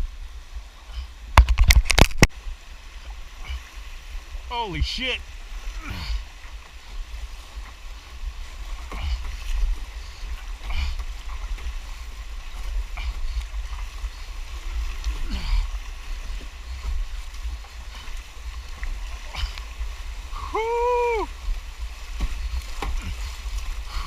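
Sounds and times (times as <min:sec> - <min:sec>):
paddle splashes: 0:00.0 - 0:24.0
rushing water: 0:00.0 - 0:24.0
person shouting whoo: 0:20.4 - 0:21.3.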